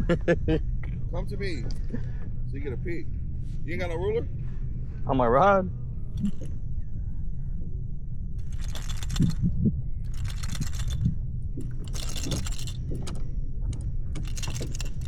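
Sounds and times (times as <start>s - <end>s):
low rumble: 5.7s - 15.0s.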